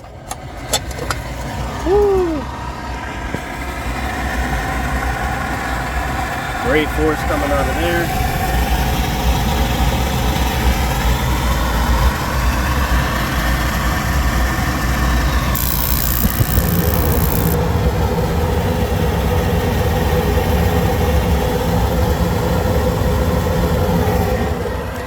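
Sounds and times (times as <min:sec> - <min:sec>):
induced-draft motor running: 0:06.1 - 0:25.0
tonal hum: 0:12.8 - 0:25.0.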